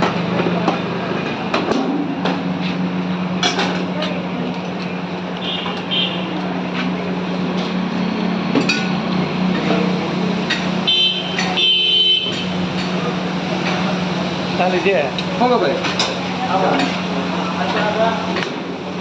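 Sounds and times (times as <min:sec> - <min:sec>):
street noise: 0:00.0 - 0:19.0
metal utensils clinking: 0:15.1 - 0:17.1.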